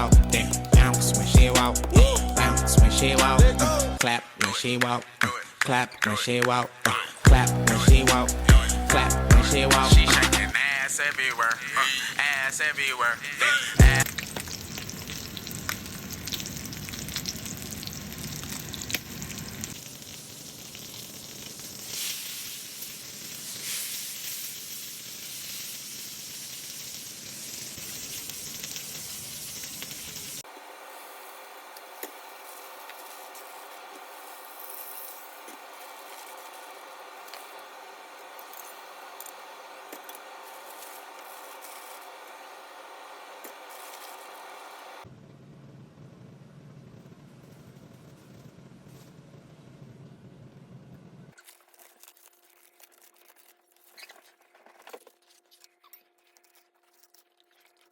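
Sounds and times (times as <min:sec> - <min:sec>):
steak sizzling in a pan: 0:13.7 - 0:44.8.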